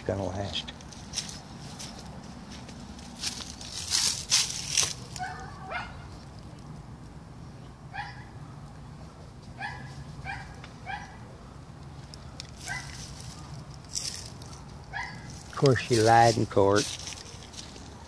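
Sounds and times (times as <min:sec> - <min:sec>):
steady low hum: 0:00.0 - 0:18.0
dog barking: 0:05.1 - 0:06.1, 0:07.9 - 0:08.6, 0:09.6 - 0:11.2, 0:12.6 - 0:13.0, 0:14.4 - 0:15.4.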